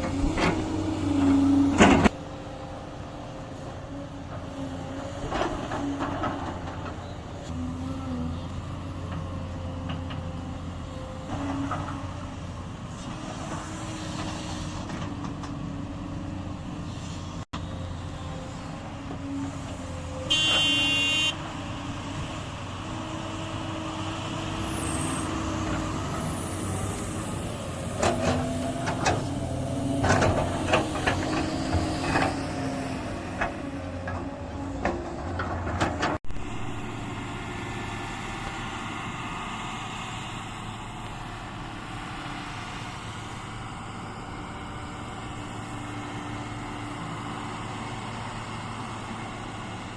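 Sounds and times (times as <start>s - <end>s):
heavy diesel machinery running: 0.0s - 49.9s
vehicle horn toot: 20.3s - 21.4s.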